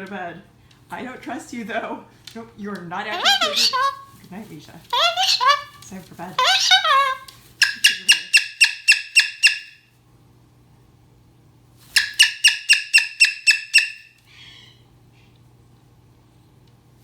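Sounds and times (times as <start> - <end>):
cockatoo squawking: 3.1 - 4.1, 4.9 - 9.8, 12.0 - 14.8.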